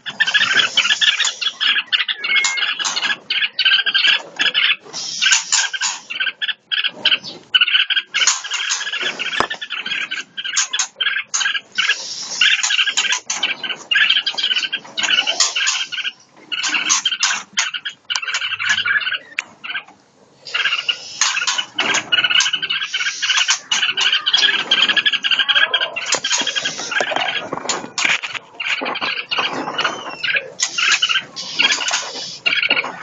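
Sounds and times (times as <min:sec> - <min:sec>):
songbirds chirping and squealing: 0:00.0 - 0:33.0.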